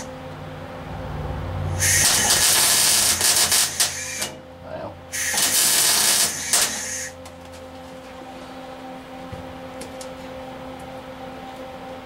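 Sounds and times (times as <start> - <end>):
steady hum: 0.0 - 12.0
welder arc crackling: 1.7 - 4.4, 5.1 - 7.3.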